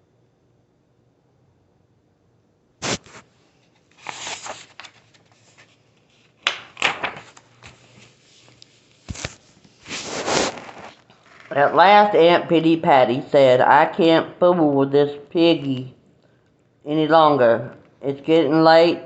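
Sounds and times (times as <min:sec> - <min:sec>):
paper pages rustling: 0:02.8 - 0:11.6.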